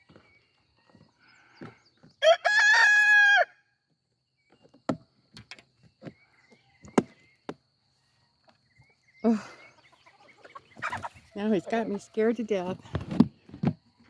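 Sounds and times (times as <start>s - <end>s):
rooster crowing: 2.2s - 3.6s.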